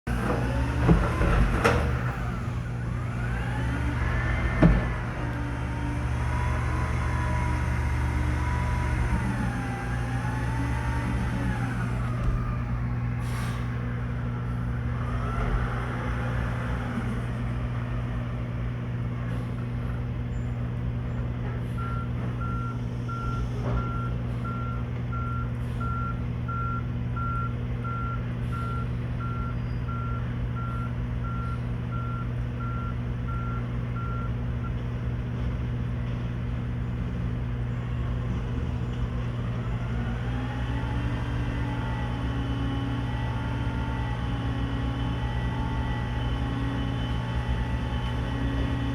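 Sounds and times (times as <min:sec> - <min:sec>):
truck engine running: 0:00.1 - 0:48.9
reversing alarm beeping: 0:21.8 - 0:34.8.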